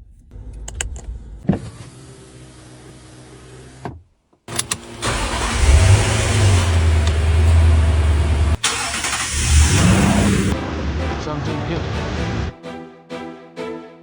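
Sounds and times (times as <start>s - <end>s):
ignition clicks: 0.0s - 1.9s, 3.8s - 10.6s
car engine starting and running: 0.0s - 12.5s.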